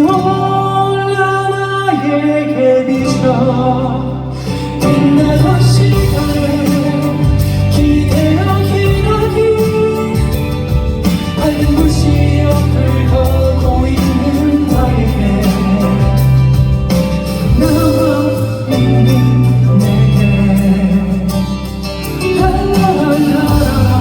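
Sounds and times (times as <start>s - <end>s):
guitar and band accompaniment: 0.0s - 24.0s
person singing a ballad: 0.0s - 24.0s.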